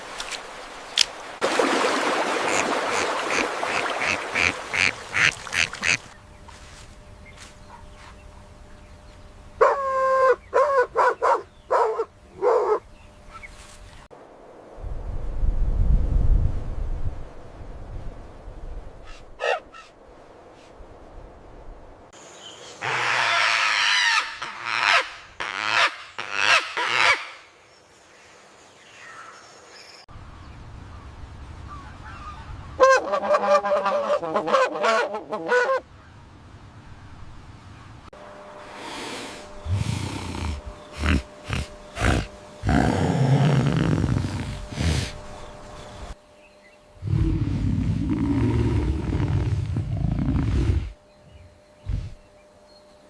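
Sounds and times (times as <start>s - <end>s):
animal calling: 9.6s - 13.5s, 39.6s - 45.2s.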